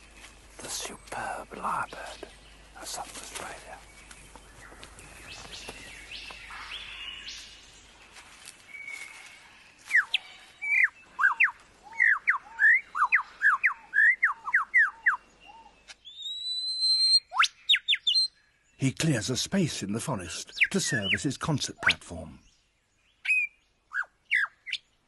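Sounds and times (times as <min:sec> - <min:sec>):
lyrebird singing sharp whistles: 0:16.0 - 0:18.3, 0:23.2 - 0:24.8.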